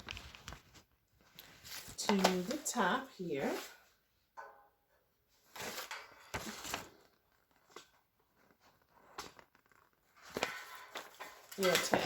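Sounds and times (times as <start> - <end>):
rustling and crinkling: 0.0 - 4.0, 5.3 - 12.0.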